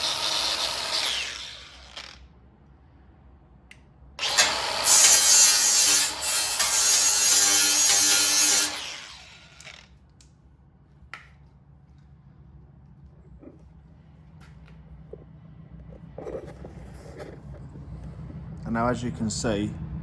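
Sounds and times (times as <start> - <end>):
angle grinder grinding metal: 0.0 - 2.2, 4.2 - 9.9.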